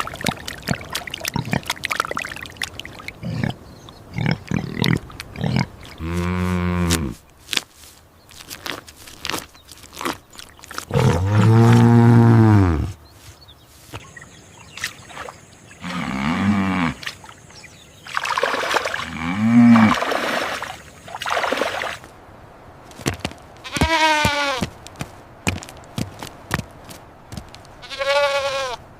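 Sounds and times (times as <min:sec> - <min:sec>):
long low animal call: 0:15.8 - 0:17.1, 0:19.0 - 0:20.1.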